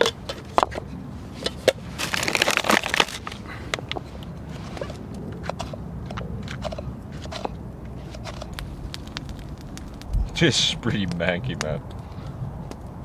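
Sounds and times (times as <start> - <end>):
campfire crackling and popping: 1.7 - 13.0
burst of crunching: 1.8 - 3.8, 6.8 - 10.6.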